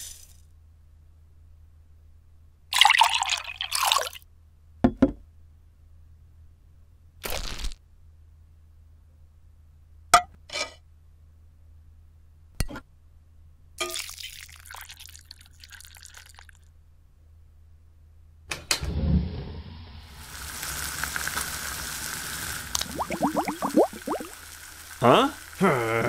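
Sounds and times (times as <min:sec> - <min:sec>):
oil pouring into pan: 0:02.8 - 0:04.2, 0:13.8 - 0:16.6, 0:20.2 - 0:25.6
oil sizzling: 0:13.8 - 0:16.6, 0:19.8 - 0:26.0.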